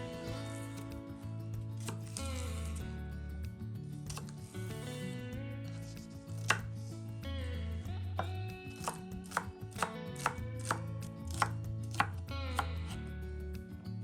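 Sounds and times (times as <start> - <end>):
soft background music: 0.0 - 14.0
knife chopping on cutting board: 1.8 - 2.8, 4.1 - 5.2, 6.0 - 6.7, 8.2 - 12.8.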